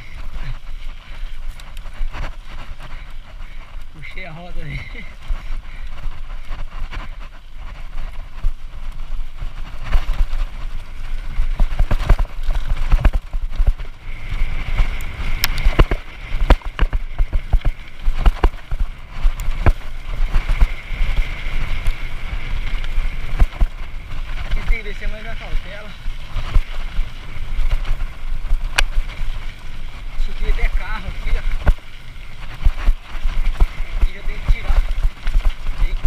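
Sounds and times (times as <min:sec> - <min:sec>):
mountain bike clattering: 0:00.0 - 0:36.0
wind on microphone: 0:00.0 - 0:36.0
wheels hitting rocks: 0:08.1 - 0:36.0.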